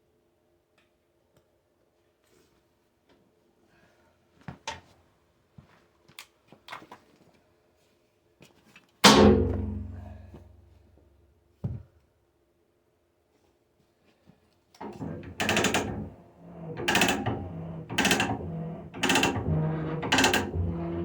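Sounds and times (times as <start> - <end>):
loud ringing metal bang: 9.1 - 10.3.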